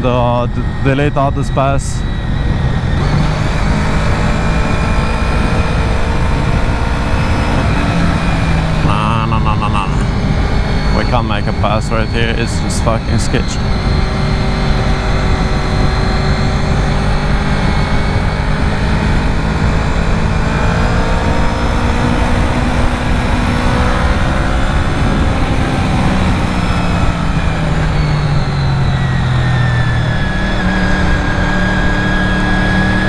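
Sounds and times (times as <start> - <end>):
steady rushing noise: 0.0 - 28.6
motorcycle engine running: 2.0 - 33.0.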